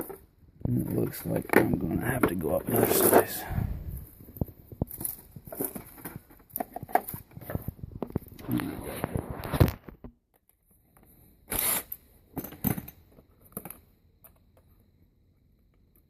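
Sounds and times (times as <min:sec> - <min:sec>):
hand tools and drill bits clattering: 0:00.0 - 0:08.5, 0:10.9 - 0:14.4.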